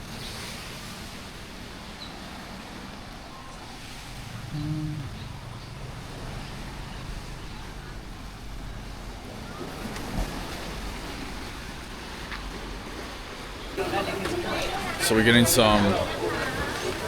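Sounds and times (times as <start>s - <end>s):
traffic: 0.0s - 17.0s
wind on microphone: 3.1s - 10.3s.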